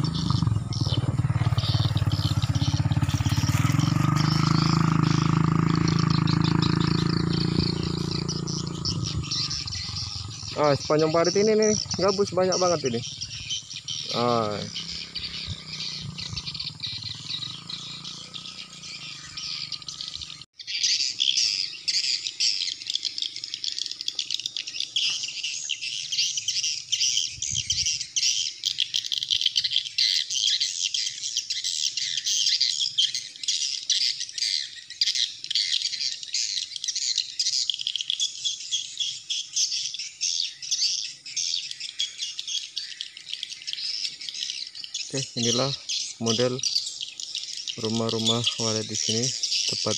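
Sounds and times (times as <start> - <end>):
swiftlets twittering: 0.0 - 20.5, 44.2 - 46.9.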